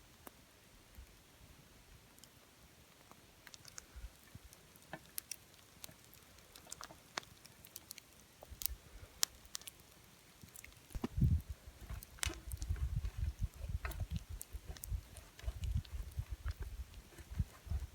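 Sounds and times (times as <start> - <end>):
small sharp crackles and clicks: 2.1 - 17.9
low thuds: 11.0 - 15.0.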